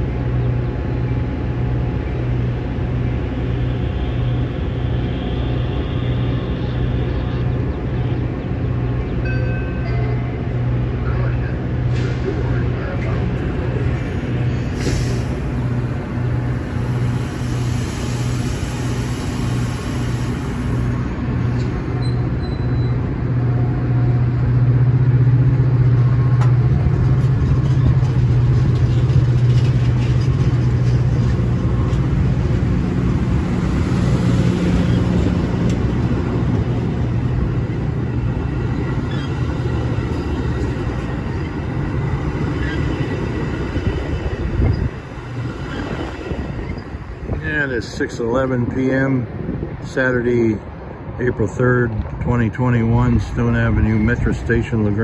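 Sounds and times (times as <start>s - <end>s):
low engine drone: 0.0s - 55.0s
train cars rolling past: 0.0s - 55.0s.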